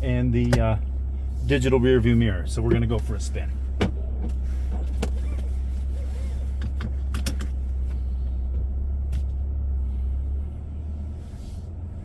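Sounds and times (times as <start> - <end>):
truck engine rumble in cab: 0.0 - 12.0.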